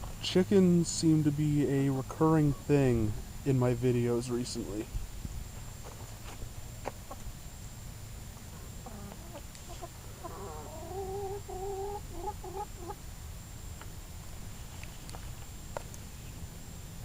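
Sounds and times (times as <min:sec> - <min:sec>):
steady low hum: 0:00.0 - 0:17.0
chickens clucking: 0:02.0 - 0:03.1, 0:06.8 - 0:07.4, 0:08.4 - 0:13.0.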